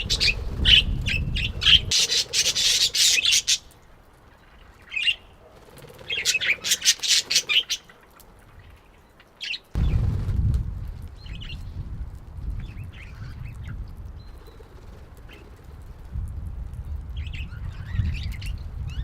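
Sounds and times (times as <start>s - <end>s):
parakeets screeching calls: 0.0s - 3.7s.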